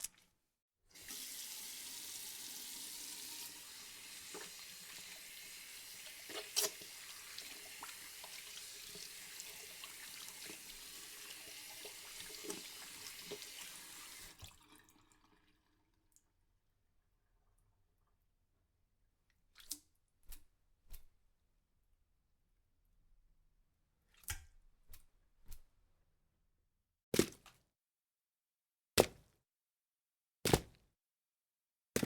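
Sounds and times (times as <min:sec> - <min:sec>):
tap water running into sink: 0:01.0 - 0:16.1.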